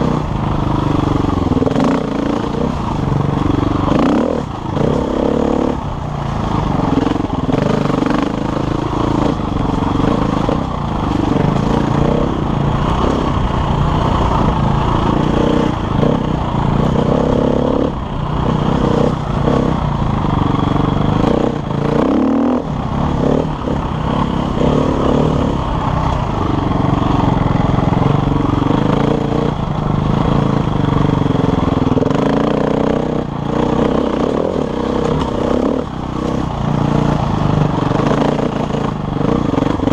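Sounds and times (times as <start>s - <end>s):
dirt bike engine revving: 0.0s - 39.9s
wind: 0.0s - 39.9s.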